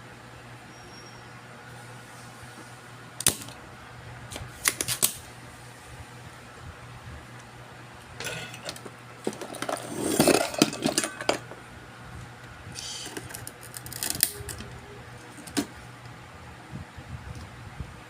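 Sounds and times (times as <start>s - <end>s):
steady low hum: 0.0s - 18.0s
metal tools clattering: 8.2s - 11.5s.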